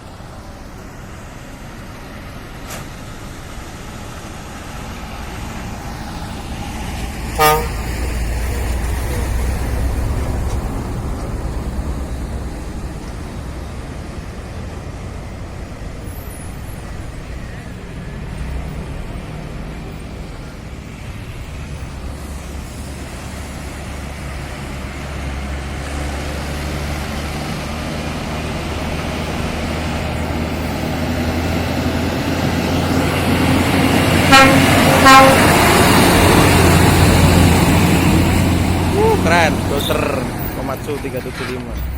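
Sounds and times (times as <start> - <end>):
truck diesel engine approaching: 0.0 - 41.9
truck horn toots: 7.3 - 8.0, 34.2 - 36.0.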